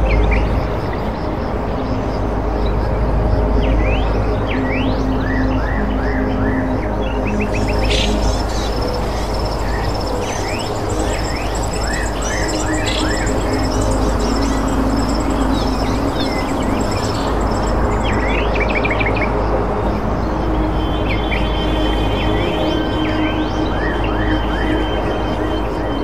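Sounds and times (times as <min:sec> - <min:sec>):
soft ambient music: 0:00.0 - 0:26.0
small birds chirping: 0:06.0 - 0:19.3.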